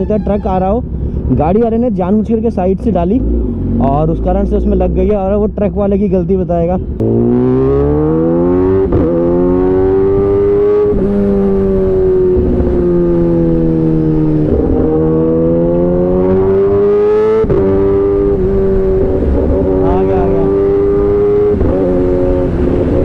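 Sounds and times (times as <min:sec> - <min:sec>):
motorcycle engine accelerating: 0:02.8 - 0:05.3, 0:06.8 - 0:23.0.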